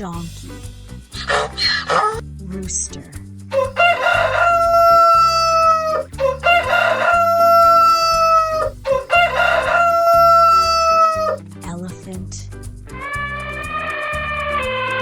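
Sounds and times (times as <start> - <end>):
rooster crowing: 3.5 - 11.4.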